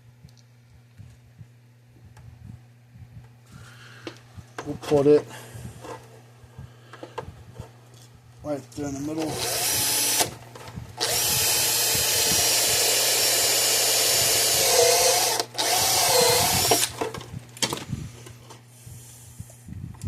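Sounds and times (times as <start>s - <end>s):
power drill boring: 9.2s - 10.3s, 11.0s - 17.0s.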